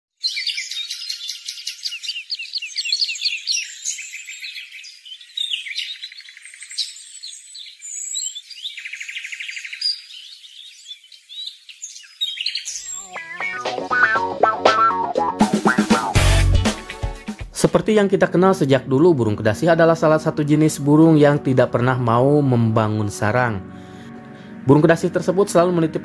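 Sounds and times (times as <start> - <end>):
birds chirping: 0.1 - 17.3
bird trill: 0.2 - 15.0.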